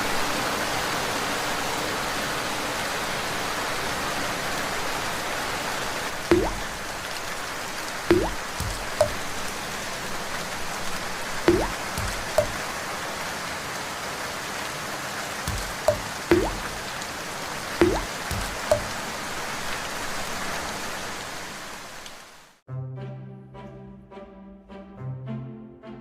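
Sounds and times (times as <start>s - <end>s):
steady rain falling: 0.0s - 22.6s
drips plinking into water: 6.3s - 7.1s, 8.1s - 9.3s, 11.5s - 12.7s, 15.5s - 17.0s, 17.8s - 19.0s.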